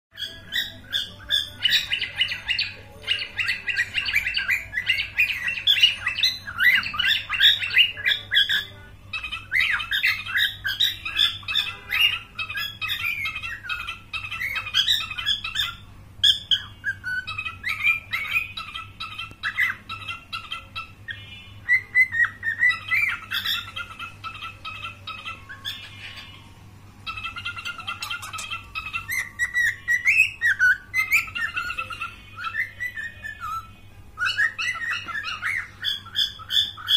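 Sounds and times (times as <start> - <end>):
cockatiel chirping and squawking: 0.2 - 36.9.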